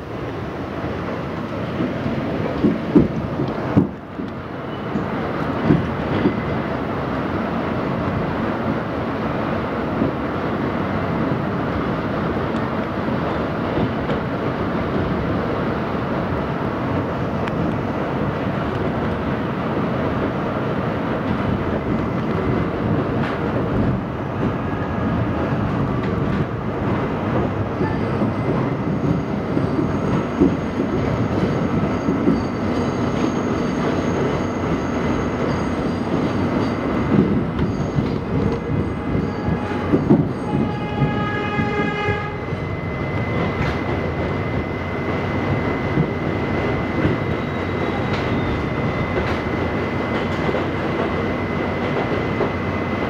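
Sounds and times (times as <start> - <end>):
subway wheels rumbling on rail: 0.0 - 53.0
high wheel squeal: 31.9 - 49.9.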